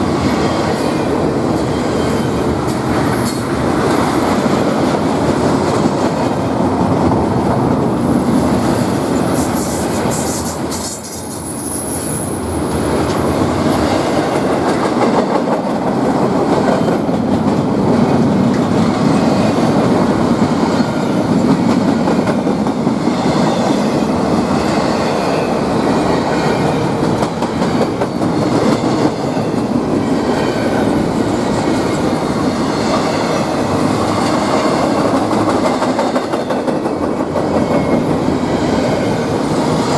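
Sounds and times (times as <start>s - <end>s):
train wheels clattering on rails: 0.0s - 39.9s
thin high squeal: 9.3s - 12.5s.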